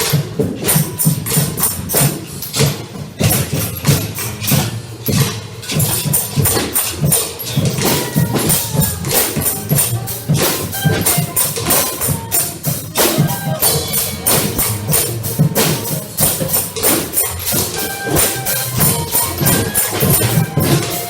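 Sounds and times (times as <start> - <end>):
percussion music: 0.0 - 21.0.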